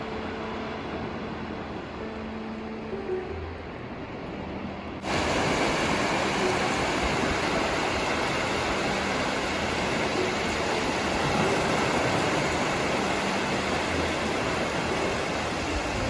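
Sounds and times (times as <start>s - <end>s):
food sizzling in hot oil: 5.0s - 16.0s.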